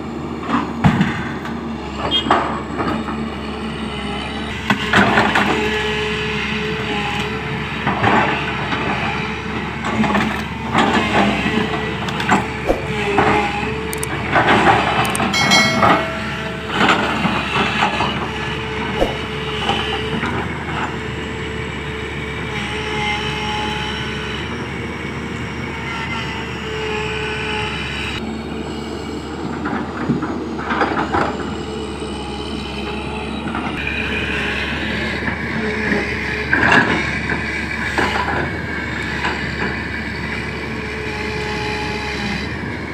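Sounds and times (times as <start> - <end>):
excavator diesel engine running: 0.0 - 42.9
metal clanks and knocks: 15.1 - 17.4.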